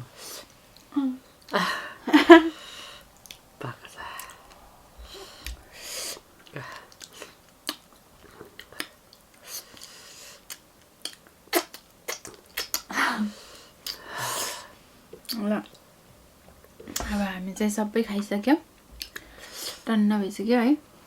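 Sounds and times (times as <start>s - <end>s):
breathing: 1.6s - 3.2s, 3.8s - 7.4s, 9.4s - 10.4s, 13.2s - 15.0s, 19.1s - 19.9s
mouth clicks: 3.2s - 12.9s.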